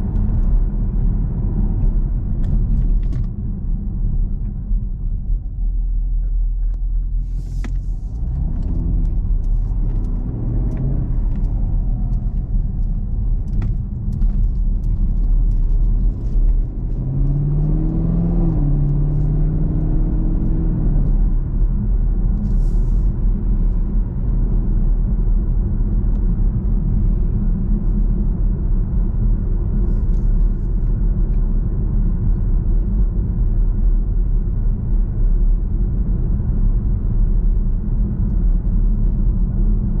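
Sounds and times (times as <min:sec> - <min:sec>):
car engine rumbling: 0:00.0 - 0:40.0.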